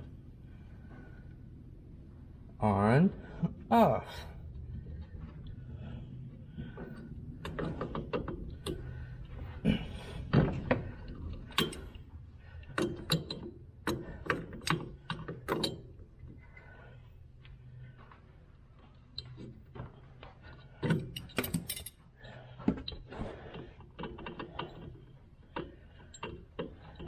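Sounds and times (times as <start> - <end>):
pliers clicking and scraping metal: 21.1 - 22.0.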